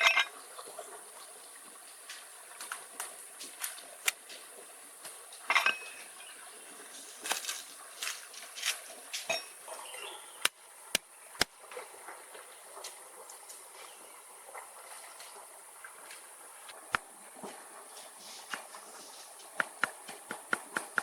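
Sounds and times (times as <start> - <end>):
utensils clinking against pots: 0.0 - 0.4, 5.5 - 6.2, 9.2 - 9.6.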